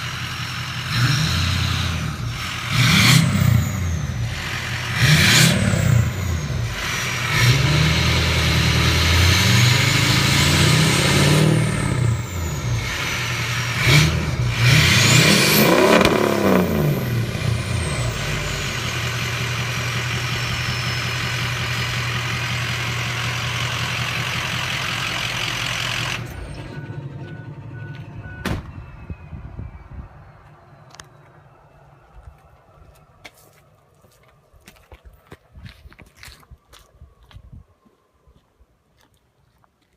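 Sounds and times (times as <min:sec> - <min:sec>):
diesel pickup engine revving: 0:00.0 - 0:29.0.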